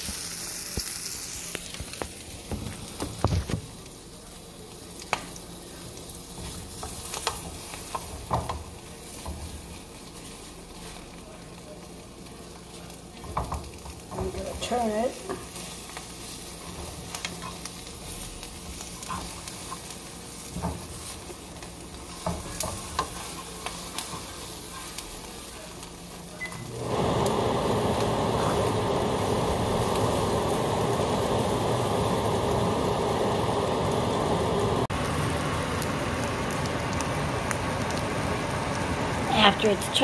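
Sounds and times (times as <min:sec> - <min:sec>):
frying sizzle: 0:00.0 - 0:40.0
spatula and fork scraping skillet: 0:22.1 - 0:25.2.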